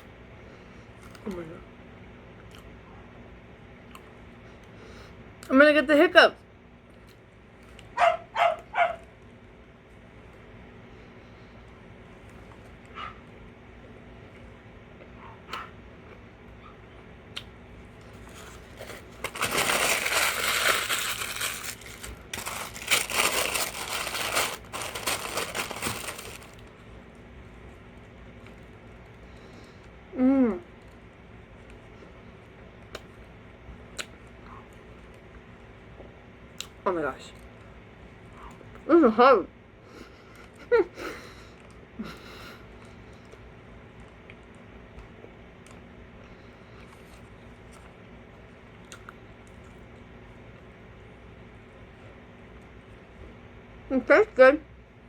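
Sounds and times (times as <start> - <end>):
chewing and mouth clicks: 2.4 - 2.8, 15.0 - 18.7, 33.9 - 35.4, 46.7 - 50.7
paper wrapper crinkling: 18.2 - 26.7.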